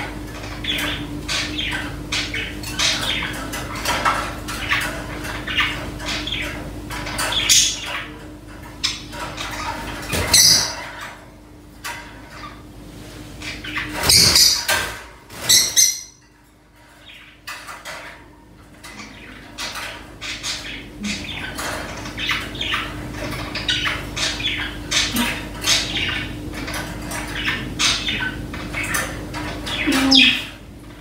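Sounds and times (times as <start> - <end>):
small birds chirping: 0.3 - 11.2, 13.4 - 18.0, 18.7 - 31.0
wings fluttering against cage: 13.8 - 15.8.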